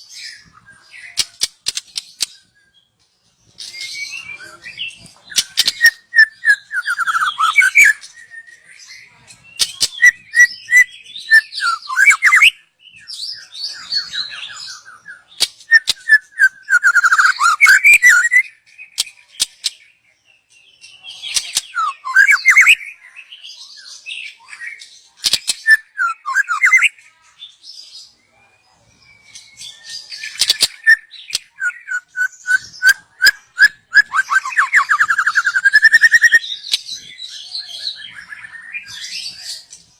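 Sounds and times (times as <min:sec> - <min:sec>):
bird whistling song: 0:00.0 - 0:03.0, 0:03.6 - 0:19.9, 0:20.9 - 0:23.2, 0:23.8 - 0:27.0, 0:29.1 - 0:39.9
bird sharp clicks: 0:01.2 - 0:02.4.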